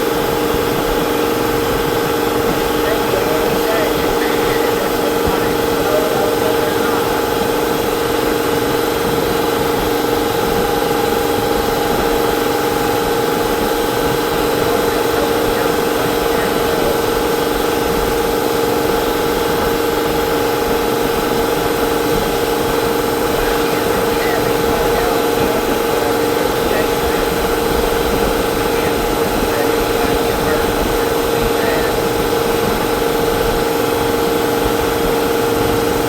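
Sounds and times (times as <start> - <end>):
machine drone with hum: 0.0 - 36.0.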